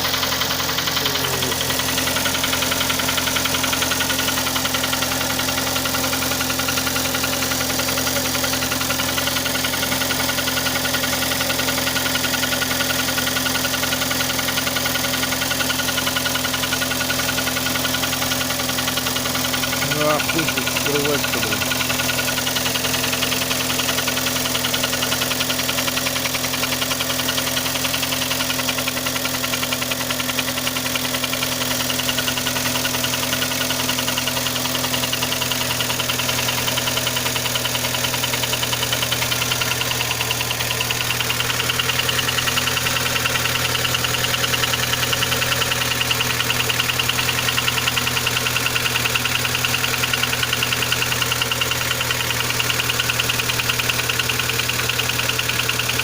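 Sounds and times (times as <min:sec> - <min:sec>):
car engine running: 0:00.0 - 0:56.0
rapid engine knock: 0:00.0 - 0:56.0.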